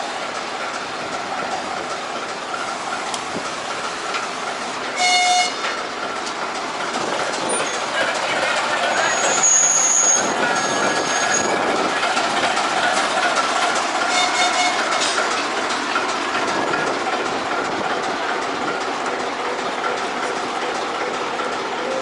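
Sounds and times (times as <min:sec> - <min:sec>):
train wheels rumbling: 0:00.0 - 0:22.0
clicks over rail joints: 0:00.3 - 0:08.9
high wheel squealing: 0:07.3 - 0:12.5.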